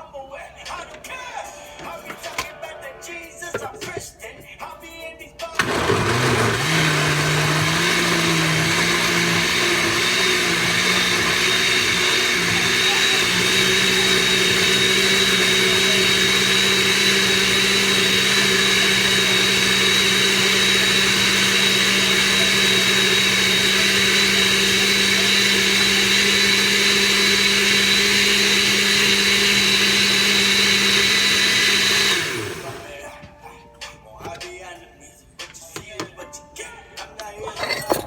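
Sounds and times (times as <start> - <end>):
blender motor whining: 5.6 - 33.0.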